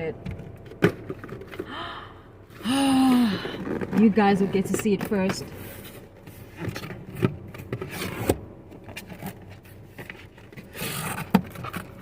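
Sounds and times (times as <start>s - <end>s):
cardboard box scraping and rustling: 7.7s - 12.0s.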